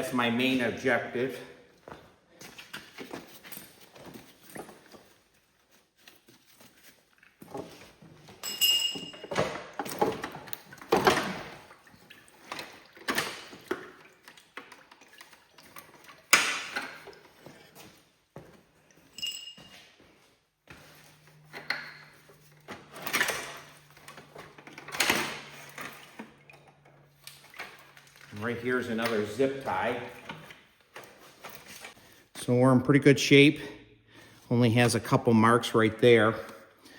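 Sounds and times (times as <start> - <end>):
tools and metal parts clanking: 7.1 - 11.6, 19.0 - 20.0, 21.4 - 32.0.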